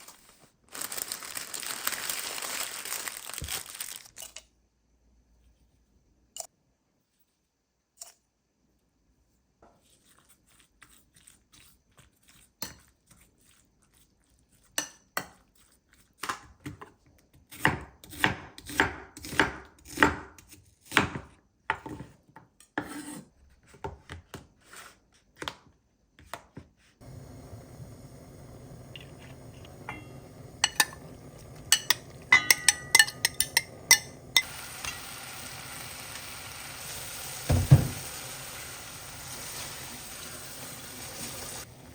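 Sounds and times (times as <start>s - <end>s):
knife on cutting board: 21.9s - 23.3s
steady hiss: 27.0s - 32.3s
utensils and dishes clattering: 29.0s - 35.0s.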